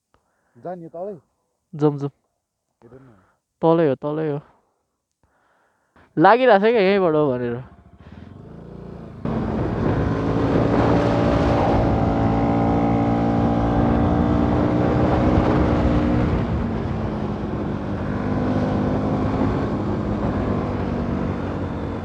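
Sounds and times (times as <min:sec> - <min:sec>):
motorcycle engine running: 0:07.7 - 0:22.0
wind noise on microphone: 0:09.0 - 0:22.0.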